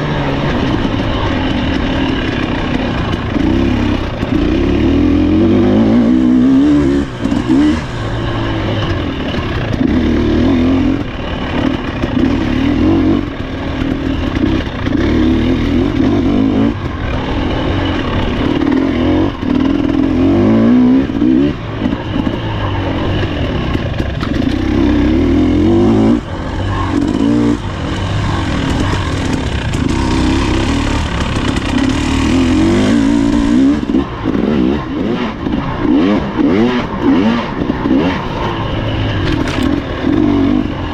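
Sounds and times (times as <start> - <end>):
dirt bike engine revving: 0.0 - 40.9
bike knocking and clattering: 26.2 - 40.9.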